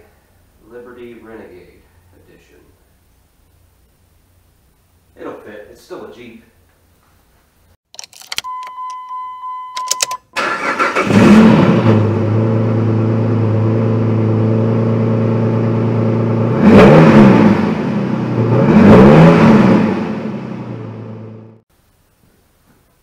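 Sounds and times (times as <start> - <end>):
clicks: 7.9 - 10.3
car engine starting and idling: 8.0 - 21.6
car engine revving: 10.4 - 21.6.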